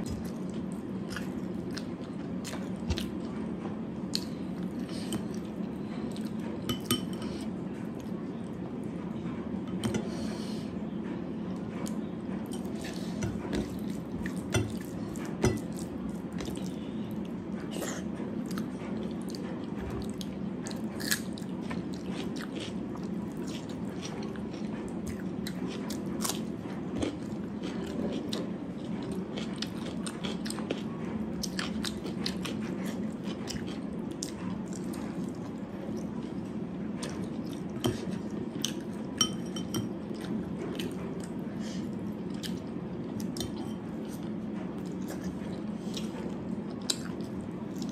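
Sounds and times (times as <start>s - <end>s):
steady low hum: 0.0s - 47.9s
person chewing crunchy food: 12.6s - 39.2s.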